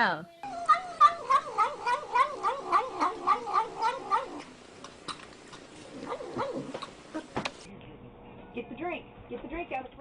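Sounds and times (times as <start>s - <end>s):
cat yowling: 0.4s - 4.5s.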